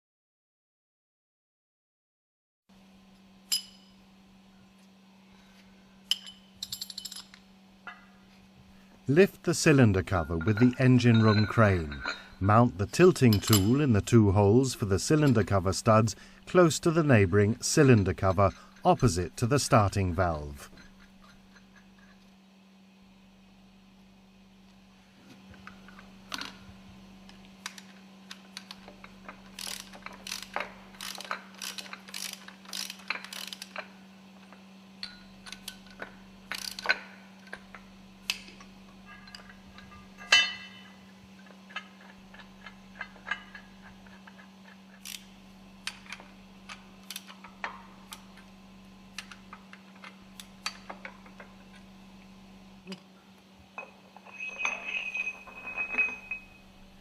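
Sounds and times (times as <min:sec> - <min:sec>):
steady low hum: 0:02.7 - 0:57.0
hand tools clanking on steel: 0:09.2 - 0:14.1, 0:16.9 - 0:22.2, 0:35.0 - 0:45.2, 0:53.8 - 0:56.6
ratchet clicks: 0:27.6 - 0:33.9, 0:35.0 - 0:38.6, 0:41.4 - 0:48.4.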